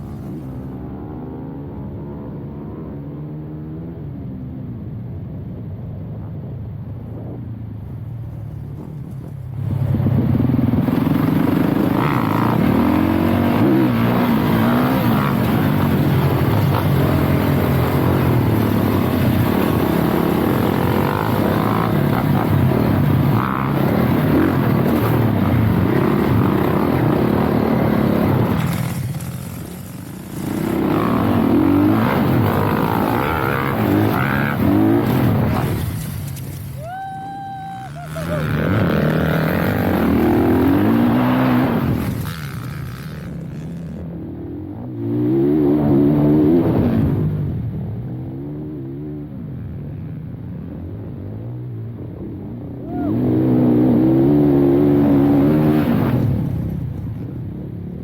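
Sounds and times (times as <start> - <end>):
dirt bike engine revving: 9.6 - 36.6, 37.7 - 44.0.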